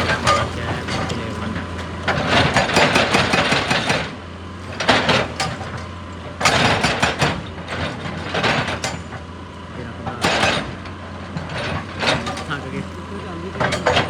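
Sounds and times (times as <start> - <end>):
clattering and crunching: 0.0 - 9.3, 11.4 - 14.0
excavator engine running: 0.0 - 14.0.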